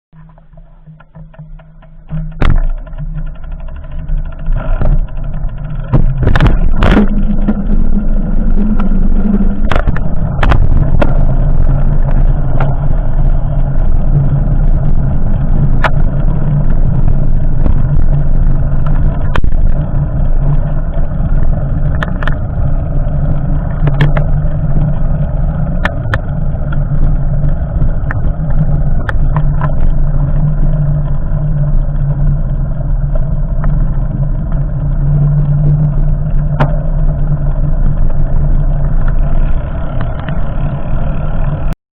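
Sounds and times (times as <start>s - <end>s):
engine humming: 0.1s - 41.8s.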